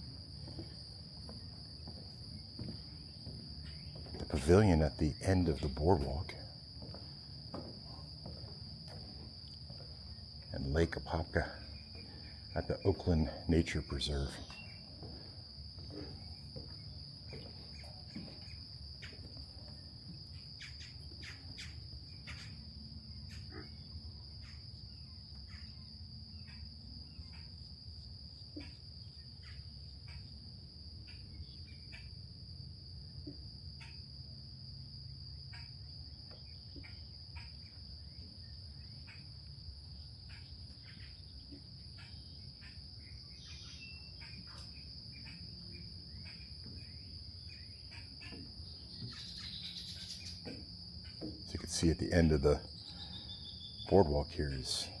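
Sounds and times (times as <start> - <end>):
insects trilling: 0.0 - 55.0
bird chirps: 40.3 - 45.4, 46.1 - 50.6, 52.7 - 54.0.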